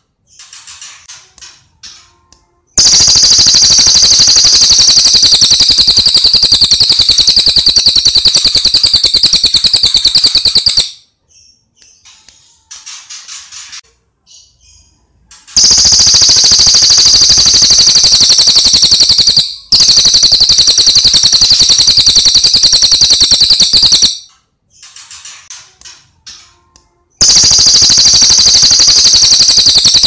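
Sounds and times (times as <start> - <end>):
bird rattling trill: 2.8 - 11.0, 15.6 - 24.2, 27.2 - 30.0.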